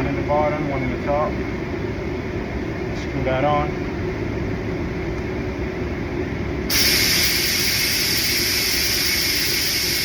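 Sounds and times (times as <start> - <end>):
steady hiss: 6.7 - 10.0.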